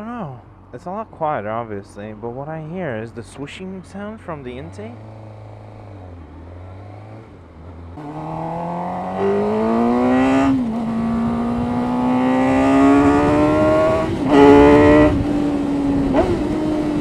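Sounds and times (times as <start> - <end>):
motorcycle engine accelerating: 4.2 - 17.0.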